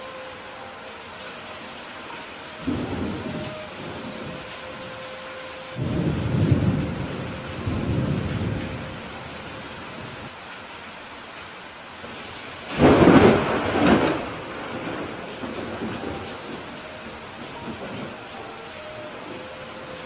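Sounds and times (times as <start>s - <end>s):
steady rain: 0.0s - 20.0s
low thunder rumble: 5.8s - 9.3s, 12.7s - 18.2s
sharp thunderclap: 12.7s - 16.1s.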